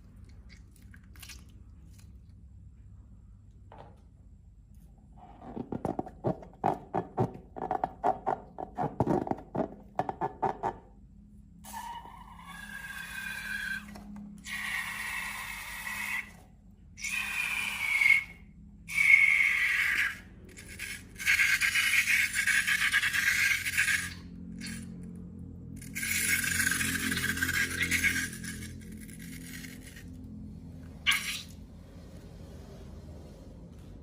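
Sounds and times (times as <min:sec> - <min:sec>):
slime and balloons squeaking: 0:31.0 - 0:31.6.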